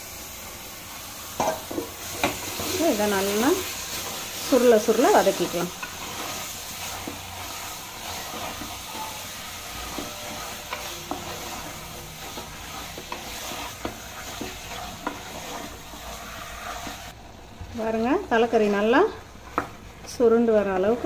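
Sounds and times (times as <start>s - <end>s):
meat sizzling in oil: 0.0s - 21.0s
spoon scraping against pot: 1.4s - 17.1s.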